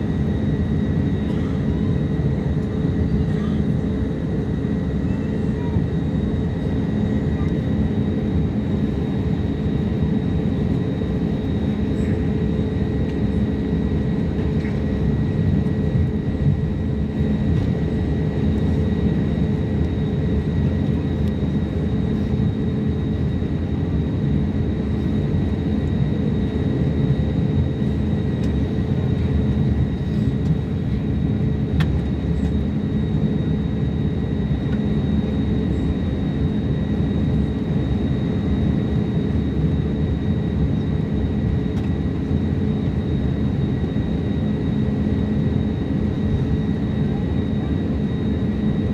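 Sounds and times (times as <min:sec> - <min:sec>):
airliner engine rumble: 0:00.0 - 0:48.9.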